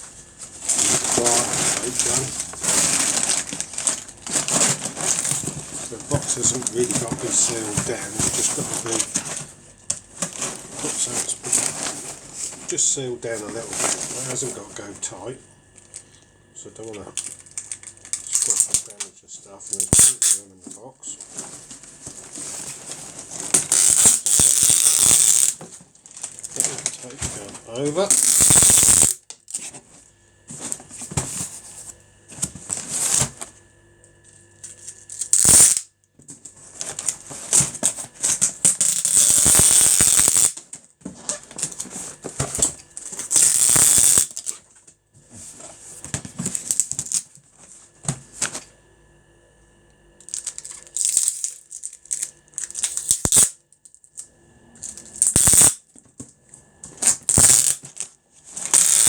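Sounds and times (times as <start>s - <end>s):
paper rustling and scraping: 0.0s - 15.2s, 19.8s - 24.5s, 25.4s - 28.7s, 29.6s - 33.6s, 36.4s - 40.3s, 41.0s - 44.7s.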